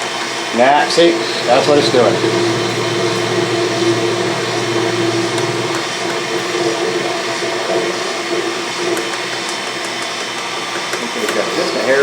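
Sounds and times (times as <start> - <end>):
lathe mechanical whir: 0.2 - 12.0
steady pitched tones: 0.6 - 8.5
low hum: 0.8 - 7.7.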